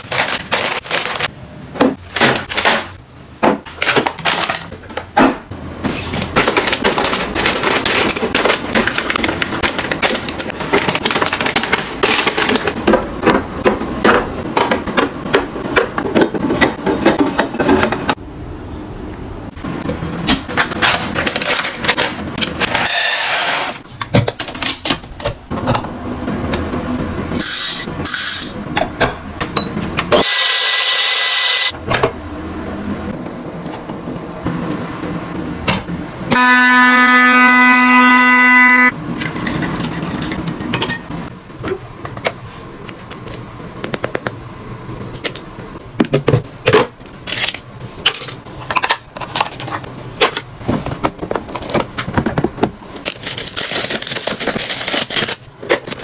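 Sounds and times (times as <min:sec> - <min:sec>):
packaging clicking and crinkling: 0:00.0 - 0:01.3, 0:02.1 - 0:03.0, 0:03.7 - 0:05.1, 0:06.0 - 0:12.8, 0:20.4 - 0:22.7, 0:46.7 - 0:56.0.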